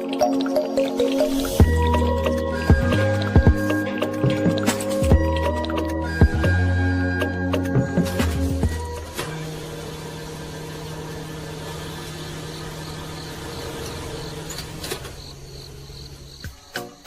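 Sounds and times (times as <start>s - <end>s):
small motor humming: 8.7s - 16.4s.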